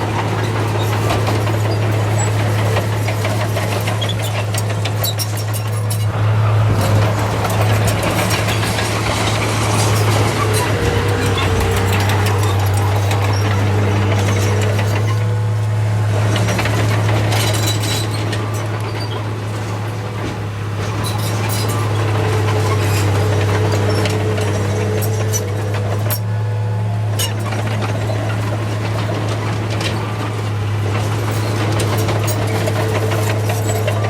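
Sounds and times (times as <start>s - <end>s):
knocks and clatter: 0.0s - 15.3s, 27.2s - 34.0s
diesel machine engine drone: 0.0s - 34.0s.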